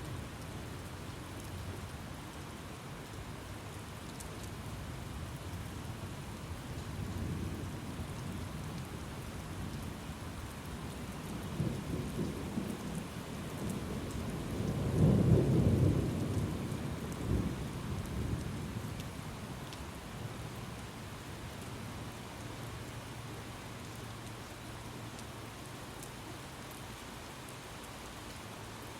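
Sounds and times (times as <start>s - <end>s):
steady rain: 0.0s - 28.9s
rolling thunder: 13.6s - 18.8s.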